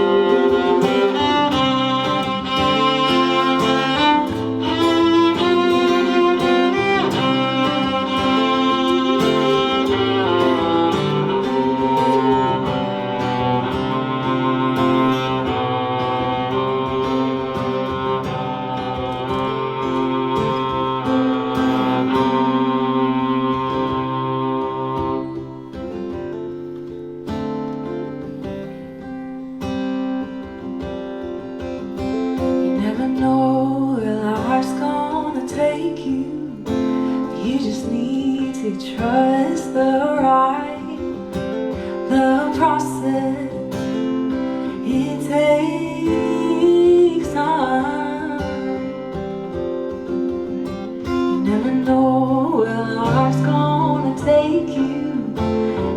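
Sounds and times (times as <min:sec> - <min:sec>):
cello bowed notes: 0:00.0 - 0:26.4
plucked guitar: 0:00.0 - 0:55.9.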